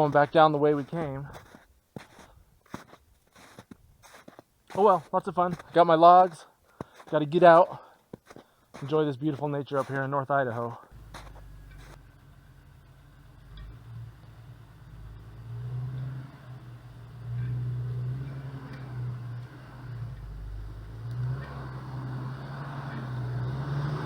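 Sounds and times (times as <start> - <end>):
vehicle driving with low hum: 10.8 - 24.0.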